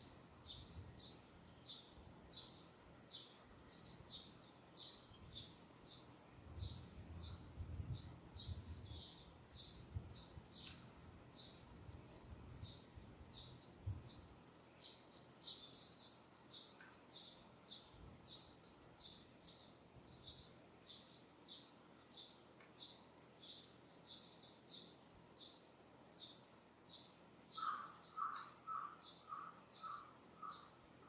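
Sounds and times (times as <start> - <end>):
bird chirping: 0.4 - 14.2, 14.8 - 30.8
lower-pitched bird call: 27.5 - 30.7.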